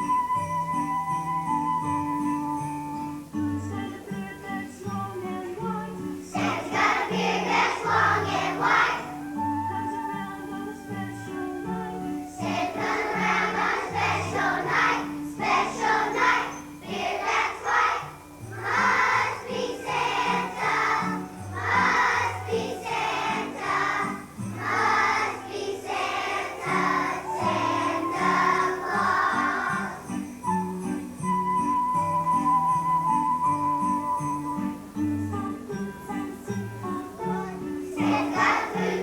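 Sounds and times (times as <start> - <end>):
instrumental accompaniment: 0.0 - 39.0
children singing together: 3.8 - 30.3, 36.3 - 39.0.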